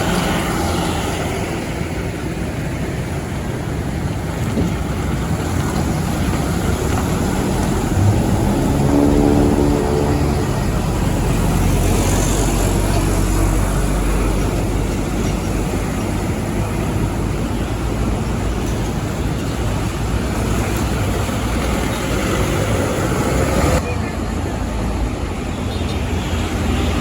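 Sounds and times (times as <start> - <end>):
heavy trucks passing: 0.0 - 27.0.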